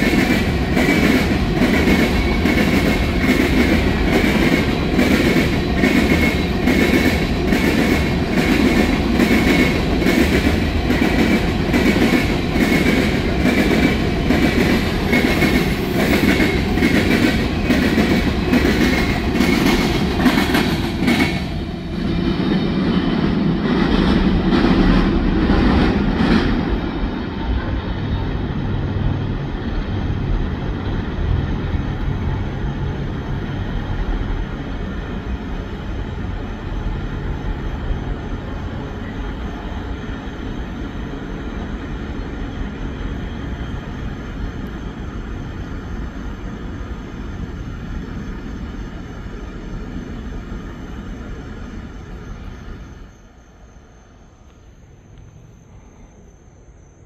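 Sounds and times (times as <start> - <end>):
train wheel clicks: 0.0 - 21.6
freight train rumble: 0.0 - 57.0.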